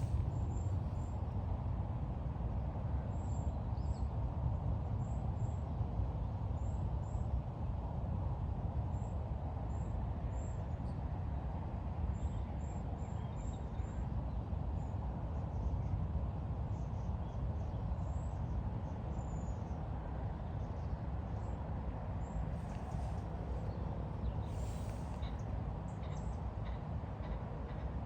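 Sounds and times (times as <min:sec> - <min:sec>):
low outdoor rumbling: 0:00.0 - 0:01.1.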